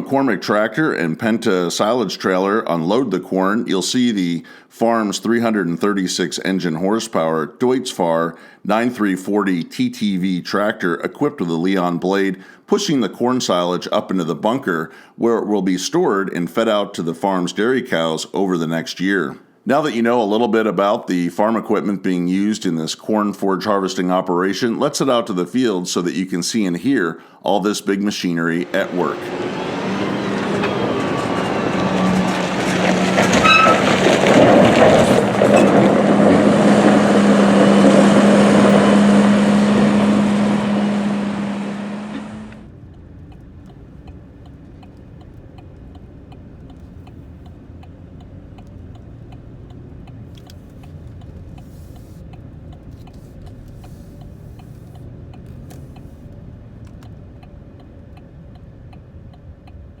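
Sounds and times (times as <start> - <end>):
farm machinery working: 28.4 - 42.6
faint regular ticking: 42.8 - 60.0.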